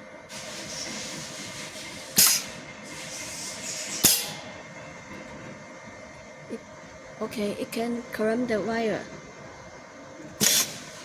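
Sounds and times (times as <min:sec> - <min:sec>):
compressed air hissing: 0:00.3 - 0:04.4, 0:10.4 - 0:11.0
pneumatic clamp clacks: 0:00.3 - 0:04.4, 0:10.4 - 0:11.0
air exhausting bursts: 0:00.3 - 0:04.8, 0:10.4 - 0:11.0.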